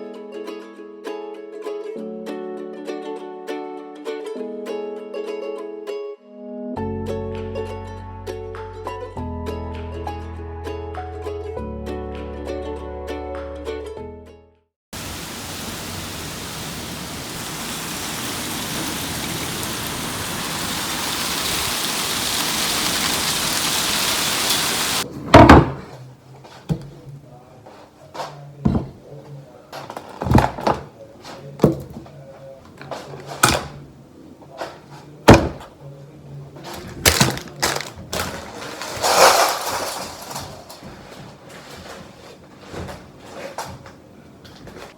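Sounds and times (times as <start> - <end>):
sharp knocks and clunks: 25.3 - 25.9, 28.6 - 29.0, 35.3 - 35.7.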